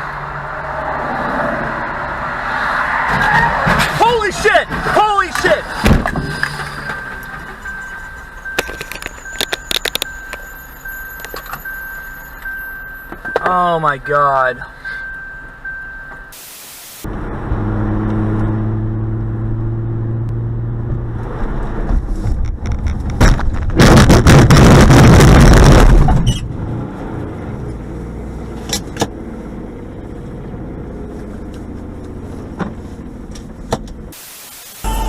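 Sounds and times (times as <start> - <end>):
car engine and road hum: 0.0 - 34.2
car collision crash: 3.0 - 7.6, 23.2 - 26.3
rattling: 4.7 - 13.4.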